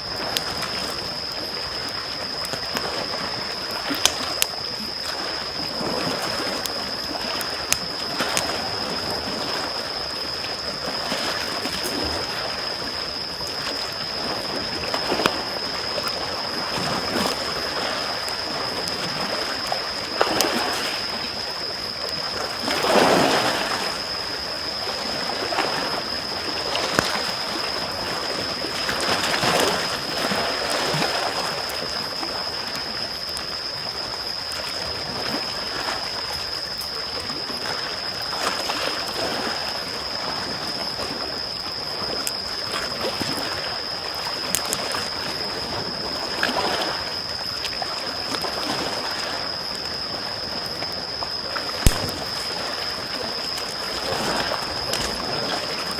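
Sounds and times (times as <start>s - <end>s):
campfire crackling and popping: 0.2s - 4.9s, 5.6s - 8.6s, 51.8s - 52.6s.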